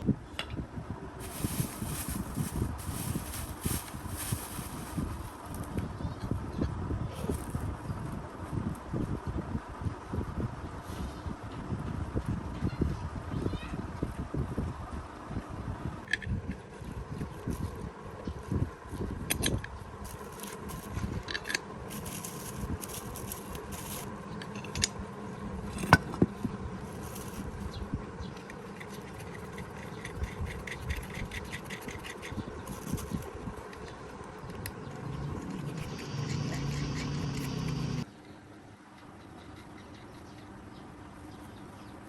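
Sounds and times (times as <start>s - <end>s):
steady noise: 1.2s - 5.8s, 34.2s - 38.0s
metal tools clinking and scraping: 20.1s - 24.9s.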